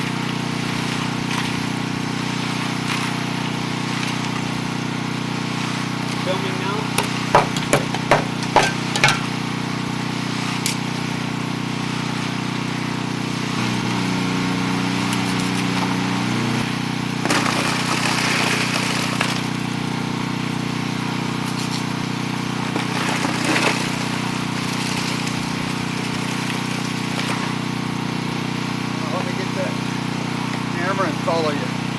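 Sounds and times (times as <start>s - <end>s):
engine running: 0.0s - 31.9s
sharp knocks: 7.0s - 9.3s.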